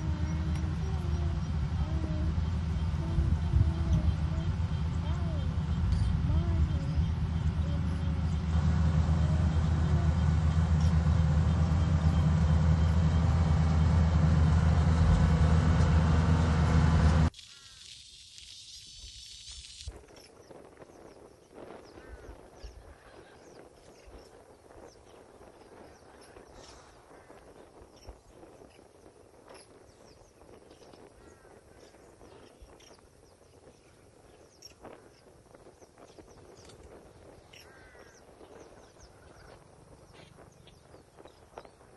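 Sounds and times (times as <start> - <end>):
engine humming: 0.0 - 17.4
birds chirping: 0.0 - 17.9, 19.6 - 41.9.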